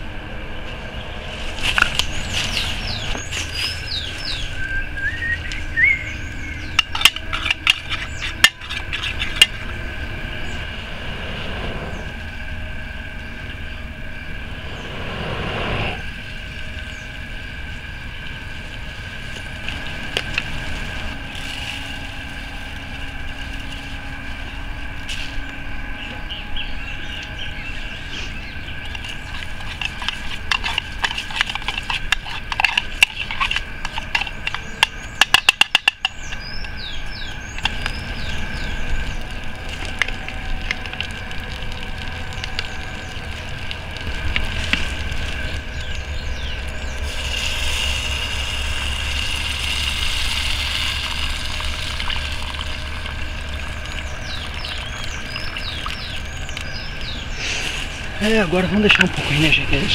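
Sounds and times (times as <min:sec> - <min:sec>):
high-pitched outdoor drone: 0:00.0 - 0:59.9
campfire crackling: 0:00.8 - 0:59.9.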